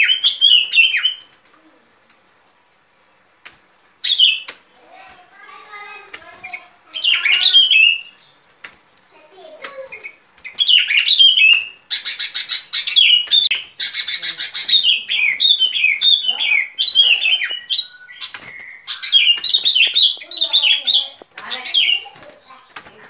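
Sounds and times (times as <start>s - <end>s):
bulbul chattering calls: 6.5s - 8.4s, 9.8s - 22.6s.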